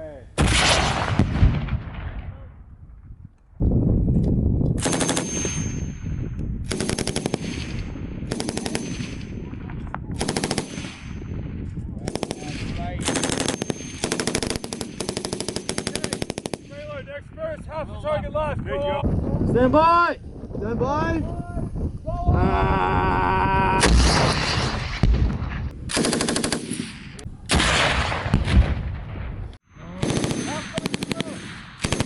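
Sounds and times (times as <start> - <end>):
loud gunshot with rolling echo: 0.4 - 2.4, 6.6 - 16.8, 23.8 - 29.4
automatic gunfire bursts: 4.8 - 5.3, 6.7 - 7.6, 8.3 - 9.1, 10.2 - 11.0, 12.1 - 16.7, 25.9 - 26.8, 30.0 - 32.0.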